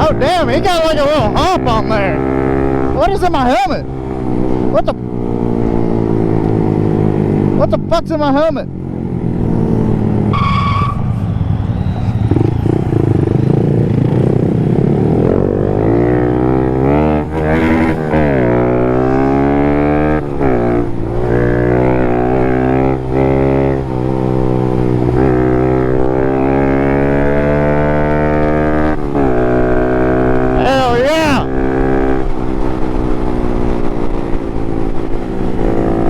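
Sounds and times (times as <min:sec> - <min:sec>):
motorcycle engine accelerating: 0:00.0 - 0:36.0
wind noise: 0:09.0 - 0:36.0.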